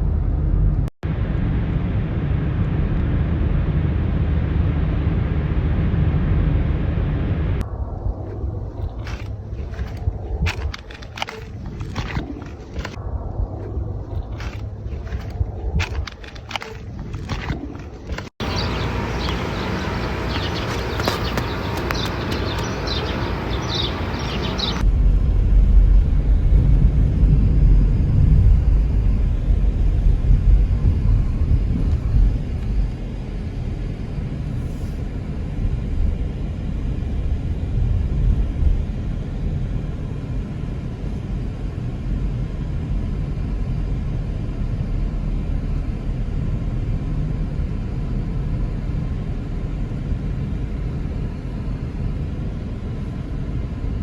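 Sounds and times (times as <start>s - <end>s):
steady low rumble: 0.0s - 17.4s, 18.1s - 54.0s
high chirps: 18.4s - 24.8s.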